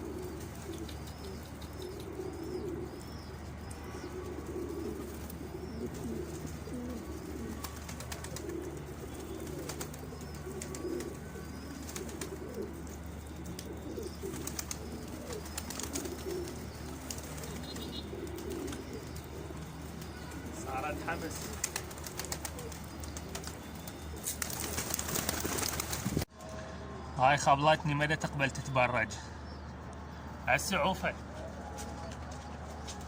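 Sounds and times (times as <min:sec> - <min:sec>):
pigeons cooing: 0:00.0 - 0:26.2.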